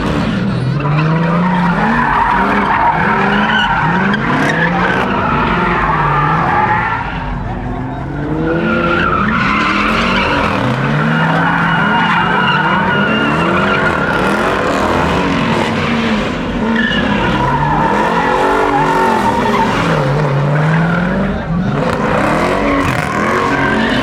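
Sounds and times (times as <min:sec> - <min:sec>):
car engine revving: 0:00.0 - 0:24.0
tyres squealing: 0:08.4 - 0:24.0.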